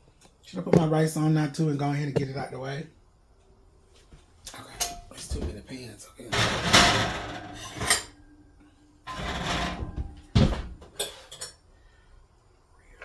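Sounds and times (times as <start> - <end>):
heavy pan clank: 6.3 - 8.1
pots scraping on stovetop: 6.3 - 8.2, 9.1 - 11.5.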